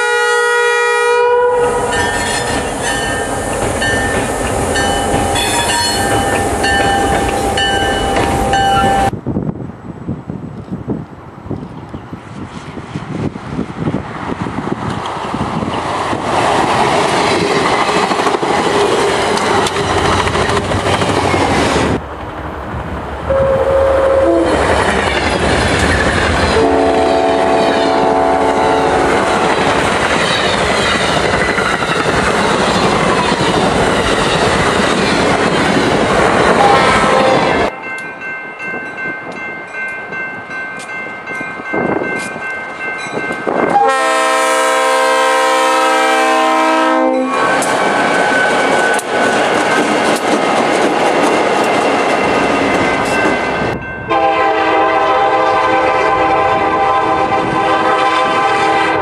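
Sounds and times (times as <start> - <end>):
train horn: 0.0 - 3.1, 4.8 - 9.1, 23.3 - 24.8, 26.5 - 29.8, 36.5 - 37.8, 43.7 - 47.6, 54.0 - 59.0
diesel locomotive approaching: 0.0 - 59.0
train wheels rumbling on rails: 1.5 - 59.0.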